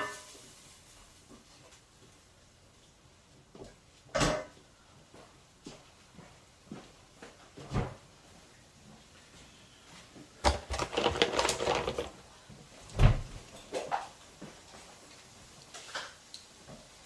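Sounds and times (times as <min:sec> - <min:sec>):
clattering and rattling at bench: 0:10.4 - 0:12.2.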